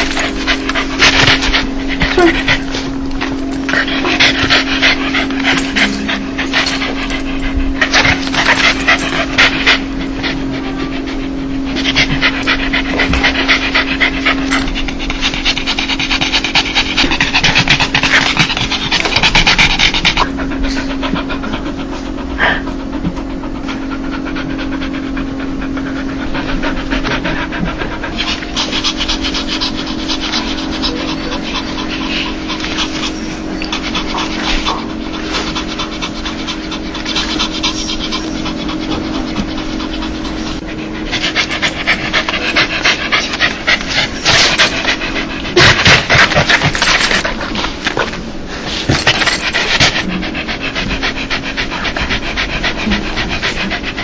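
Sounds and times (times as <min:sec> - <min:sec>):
dog panting: 0:00.0 - 0:54.0
steady low hum: 0:00.0 - 0:54.0.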